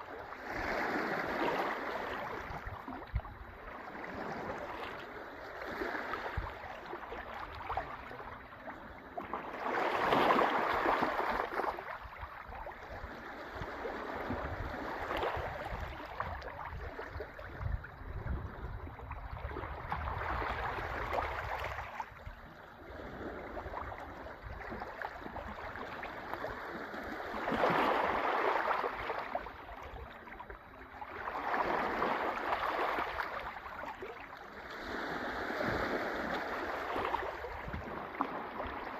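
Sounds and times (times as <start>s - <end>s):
sea waves washing in: 30.4s - 38.9s.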